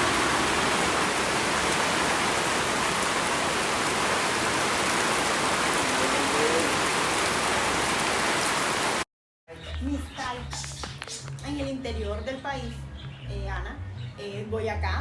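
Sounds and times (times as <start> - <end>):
hiss of falling water: 0.0 - 9.0.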